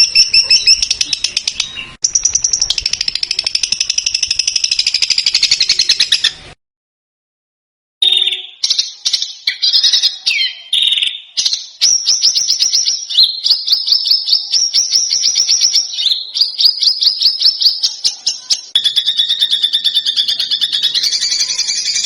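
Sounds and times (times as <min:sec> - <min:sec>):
sharp high chirps: 0:00.0 - 0:06.3, 0:18.6 - 0:22.0
songbird calls: 0:00.0 - 0:06.5, 0:08.0 - 0:22.0.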